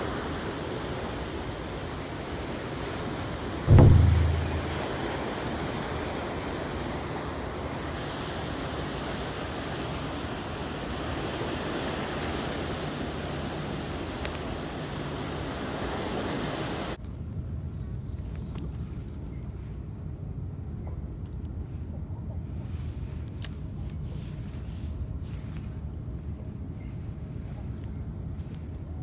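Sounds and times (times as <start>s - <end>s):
wind: 0.0s - 29.0s
rushing water: 3.6s - 5.4s, 6.7s - 17.0s
loud thump: 3.7s - 5.0s.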